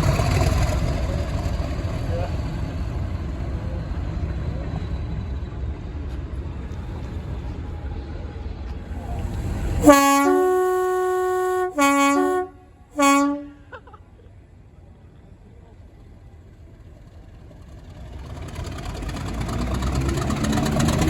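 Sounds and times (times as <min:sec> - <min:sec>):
train rumbling: 0:00.0 - 0:21.0
two-tone train horn: 0:09.0 - 0:13.8.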